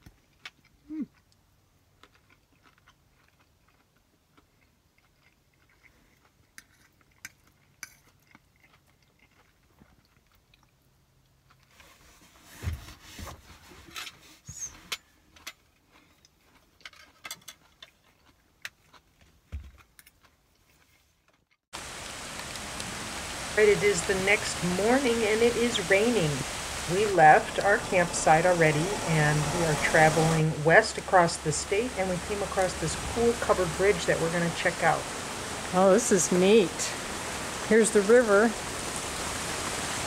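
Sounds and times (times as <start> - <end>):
person chewing: 0.0 - 11.8, 15.3 - 21.5.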